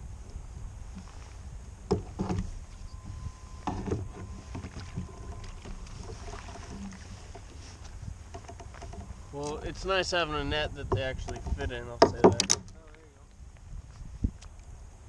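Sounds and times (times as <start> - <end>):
knocks against kayak hull: 1.9 - 2.5, 10.9 - 12.7.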